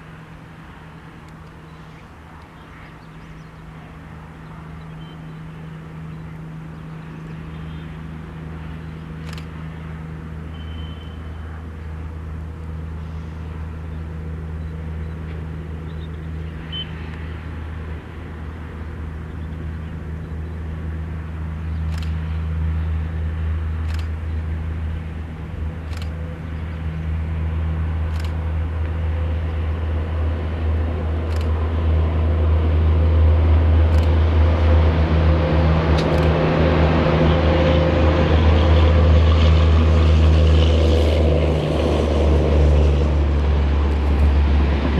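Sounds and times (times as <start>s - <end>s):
electric locomotive humming: 0.0s - 44.9s
sharp clicks: 9.2s - 9.6s, 21.8s - 22.2s, 23.8s - 24.2s, 25.8s - 26.2s, 28.0s - 29.0s, 31.2s - 31.6s, 33.9s - 34.2s.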